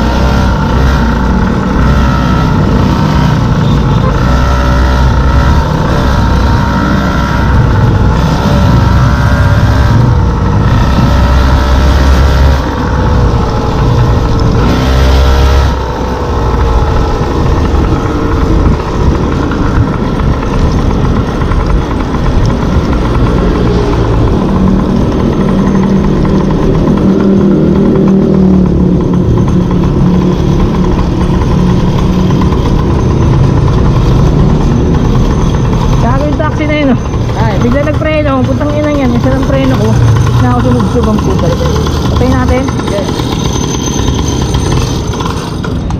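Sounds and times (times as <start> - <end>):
two-stroke scooter engine running: 0.0 - 45.9.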